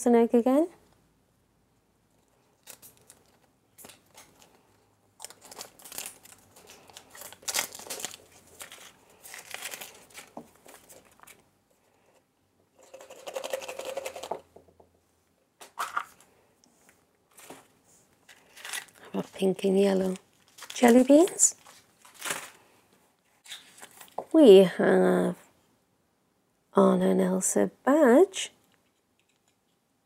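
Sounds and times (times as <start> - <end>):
packaging crinkling and tearing: 2.4 - 11.4, 18.3 - 22.7.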